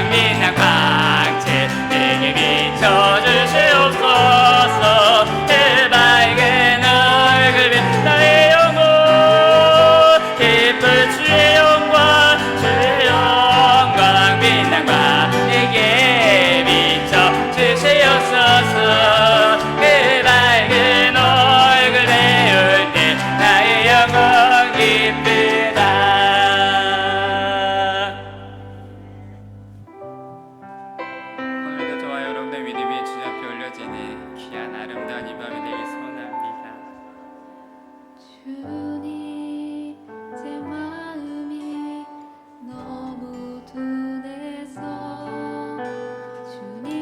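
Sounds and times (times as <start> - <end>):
bass: 0.0 - 30.0
piano: 0.0 - 47.0.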